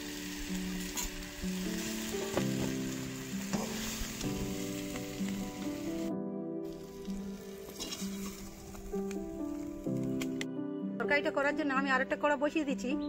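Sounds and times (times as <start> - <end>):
food sizzling in hot oil: 0.0 - 10.4
soft background music: 0.0 - 13.0
spoon knocking against pan: 3.5 - 3.9.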